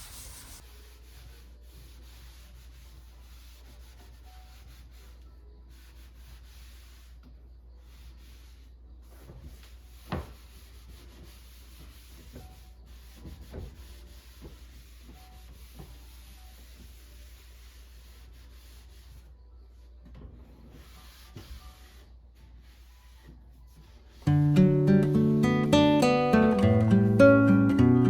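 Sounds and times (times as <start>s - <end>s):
rubbing and handling noises: 7.8s - 24.3s.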